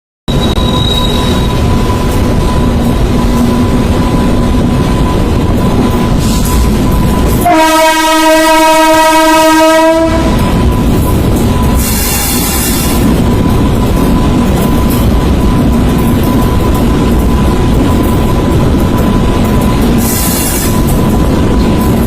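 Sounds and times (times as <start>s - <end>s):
train rumbling: 0.3s - 22.0s
train horn: 7.4s - 10.4s, 11.8s - 13.0s.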